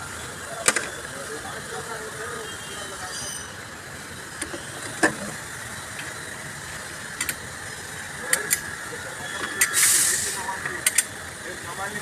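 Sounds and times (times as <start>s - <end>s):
workshop background noise: 0.0s - 12.0s.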